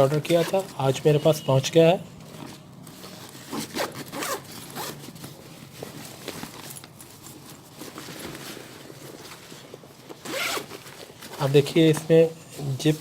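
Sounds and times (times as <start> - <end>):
bag handling noises: 0.0 - 1.1, 2.2 - 13.0
bag zip being pulled: 3.5 - 5.0, 10.2 - 10.8.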